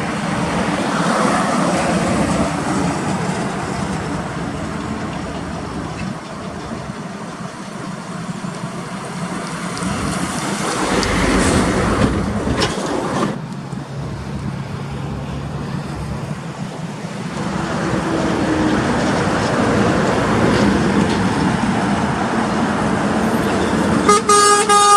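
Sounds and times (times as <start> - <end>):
diesel truck engine hum: 0.0 - 24.9
road and traffic noise: 0.0 - 24.9
vehicle passing close: 9.2 - 19.8.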